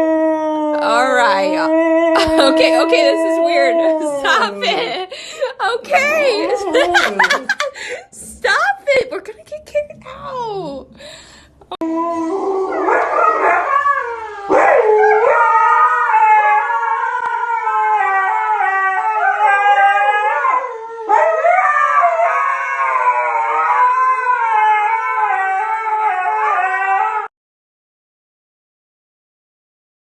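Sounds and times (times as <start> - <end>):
dog howling: 0.0 - 4.9, 5.9 - 7.7, 11.8 - 27.3.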